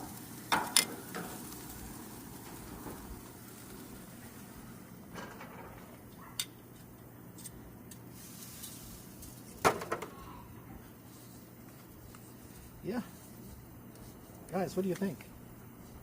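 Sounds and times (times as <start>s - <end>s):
metallic clicks on a grill: 0.0s - 3.9s, 5.1s - 6.6s, 13.9s - 15.2s
low steady background noise: 0.0s - 16.0s.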